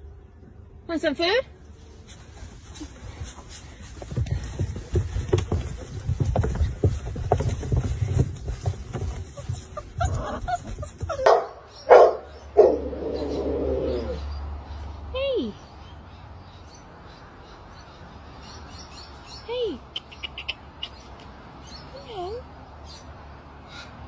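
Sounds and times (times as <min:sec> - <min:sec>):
soft knocking and rustling: 0:02.1 - 0:11.4
dog barking: 0:11.2 - 0:12.8.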